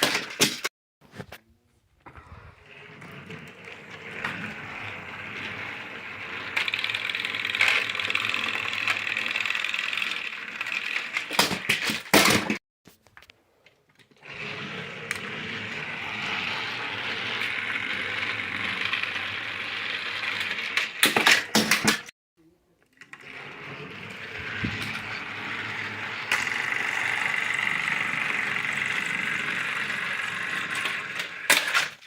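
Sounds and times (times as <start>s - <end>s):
toy electric motor whirring: 3.4s - 11.5s, 14.2s - 21.4s, 23.0s - 32.0s.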